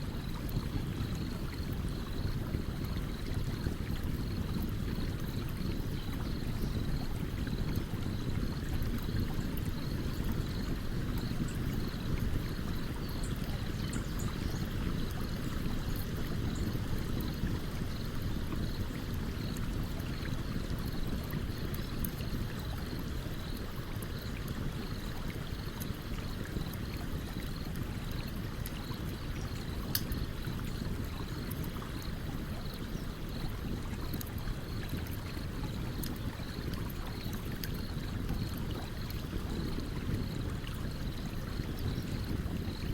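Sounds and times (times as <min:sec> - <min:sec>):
campfire crackling and popping: 0:27.6 - 0:31.7, 0:33.4 - 0:38.8.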